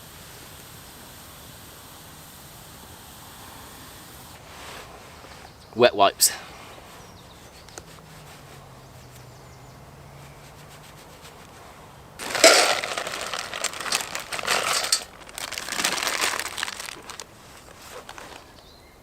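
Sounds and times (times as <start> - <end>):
rustling and crinkling: 4.4 - 5.6, 10.2 - 18.8.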